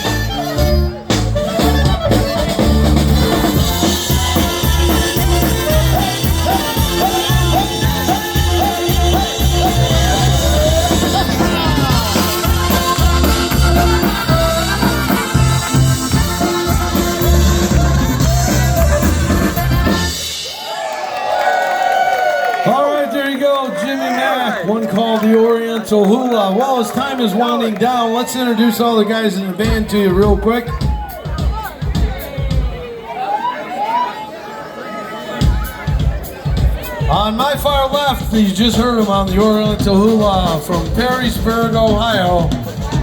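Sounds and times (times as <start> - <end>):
polka band playing: 0.0 - 20.7, 29.5 - 33.0, 35.3 - 43.0.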